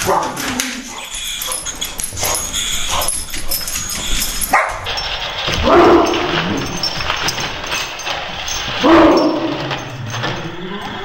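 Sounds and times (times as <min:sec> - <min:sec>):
dog barking: 0:00.0 - 0:03.7, 0:04.5 - 0:06.6, 0:08.8 - 0:09.7
dog whimpering: 0:00.4 - 0:07.4.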